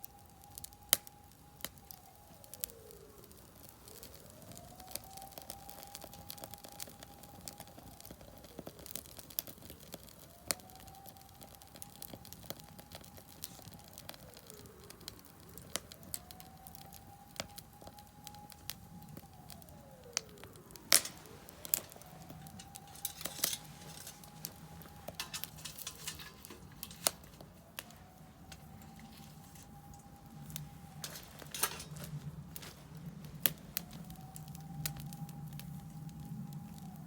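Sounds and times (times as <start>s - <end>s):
distant siren wailing: 0.0s - 37.0s
wood fire crackling and popping: 0.0s - 37.0s.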